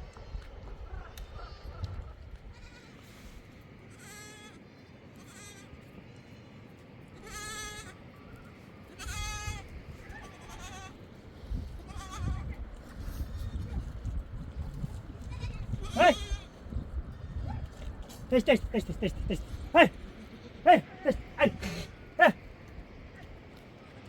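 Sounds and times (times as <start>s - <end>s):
goats or sheep bleating: 5.2s - 5.6s, 15.3s - 16.4s, 18.3s - 20.0s, 20.6s - 22.4s.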